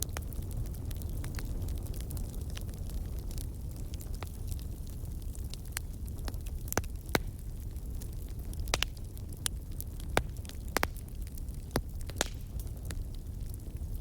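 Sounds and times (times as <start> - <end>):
burning logs crackling and popping: 0.0 - 14.0
wood fire rumbling: 0.0 - 14.0.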